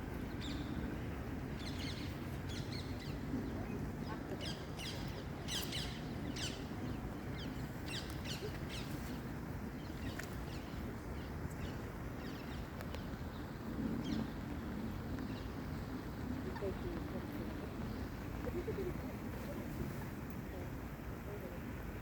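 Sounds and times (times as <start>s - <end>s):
small birds chirping: 0.3s - 14.4s.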